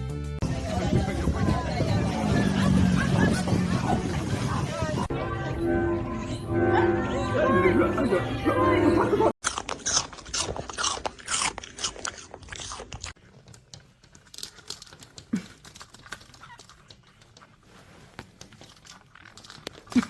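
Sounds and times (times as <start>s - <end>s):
animal chewing and crunching: 9.4s - 20.0s.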